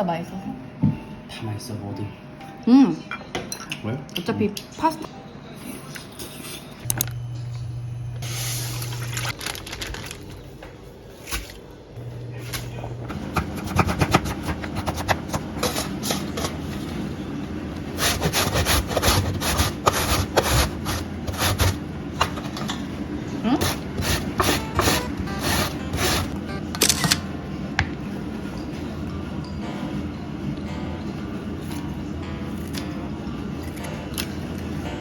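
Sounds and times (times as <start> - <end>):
low steady hum: 6.8 - 35.0.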